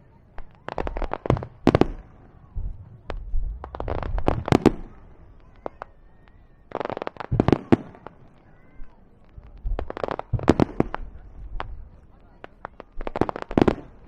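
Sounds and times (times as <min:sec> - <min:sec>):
fireworks bursting with sharp bangs: 0:00.0 - 0:14.0.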